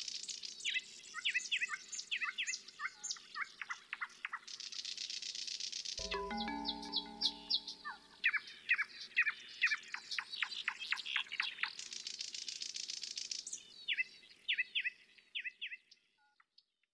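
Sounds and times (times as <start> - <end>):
songbird chirping: 6.0 - 11.8.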